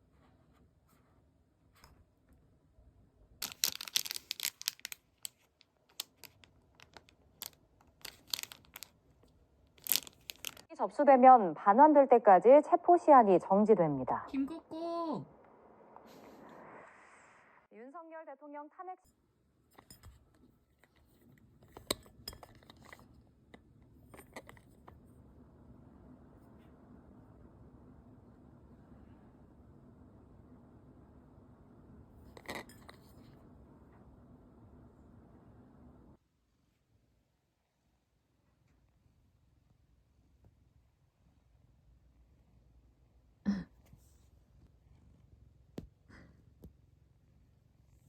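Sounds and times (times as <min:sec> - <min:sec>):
faint steady hum: 0:00.0 - 0:48.0
crackly handling clicks and crinkles: 0:03.4 - 0:10.7, 0:19.7 - 0:25.3.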